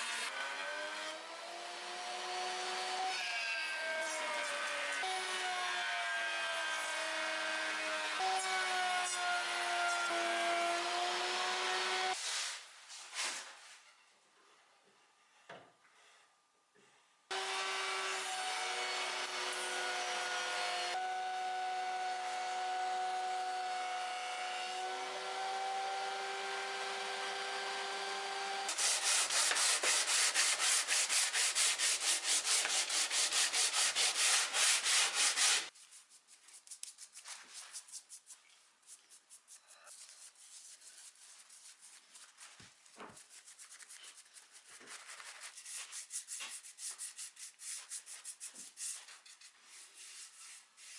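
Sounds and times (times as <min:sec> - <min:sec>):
power sander whining: 0:17.3 - 0:35.7
hand sanding strokes on wood: 0:28.7 - 0:50.9.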